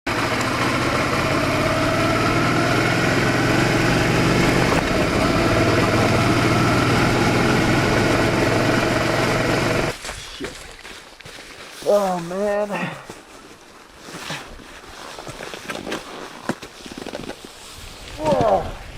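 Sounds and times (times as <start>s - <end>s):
motorcycle engine running: 0.1s - 9.9s.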